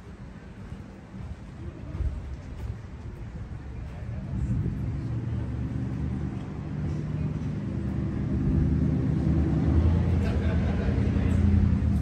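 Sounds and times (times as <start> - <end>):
car engine droning: 4.0 - 12.0.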